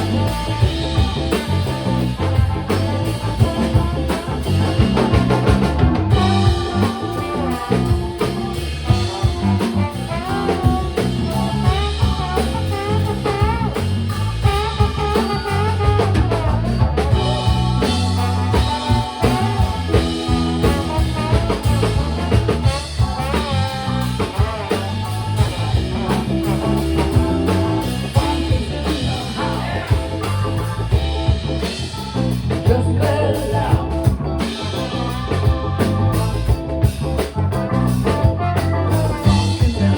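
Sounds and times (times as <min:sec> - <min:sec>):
live funk band playing: 0:00.0 - 0:39.9
person singing: 0:27.8 - 0:30.7, 0:32.6 - 0:34.2.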